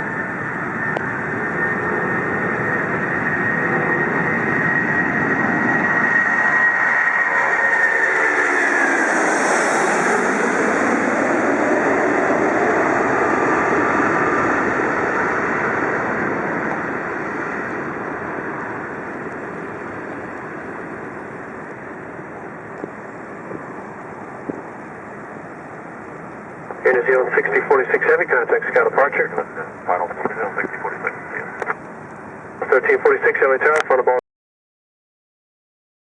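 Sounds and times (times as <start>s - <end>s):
high jet whine falling: 0.0s - 34.2s
jet engines roaring: 0.0s - 34.2s.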